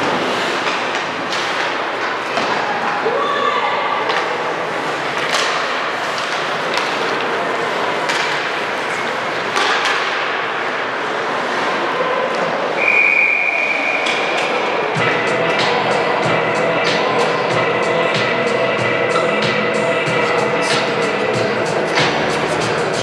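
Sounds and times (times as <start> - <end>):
crowd noise: 0.0 - 23.0
referee's whistle blast: 12.8 - 14.2.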